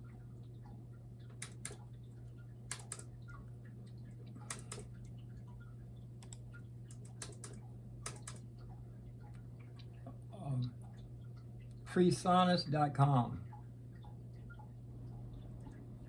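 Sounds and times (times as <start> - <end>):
steady low hum: 0.0 - 16.0
computer keys clicking: 1.2 - 9.9.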